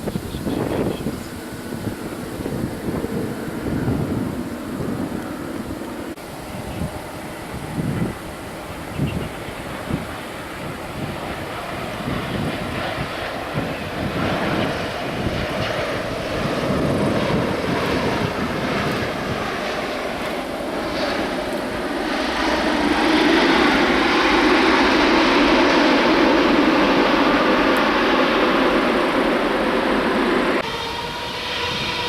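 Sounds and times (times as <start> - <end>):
jet engine noise: 0.0 - 32.0
wind buffeting microphone: 0.0 - 32.0.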